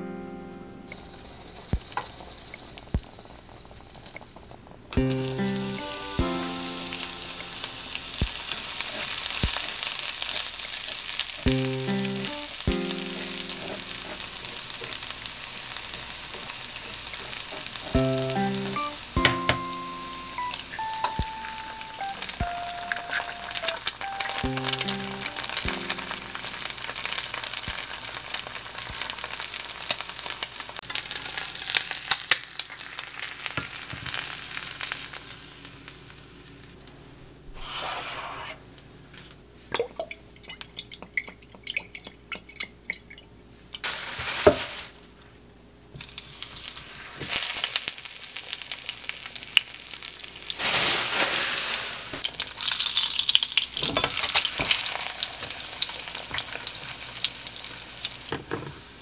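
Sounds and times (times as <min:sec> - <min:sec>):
egg frying in oil: 0:01.0 - 0:36.8, 0:46.0 - 0:58.4
breaded cutlet sizzling in oil: 0:05.0 - 0:36.7, 0:46.0 - 0:59.0.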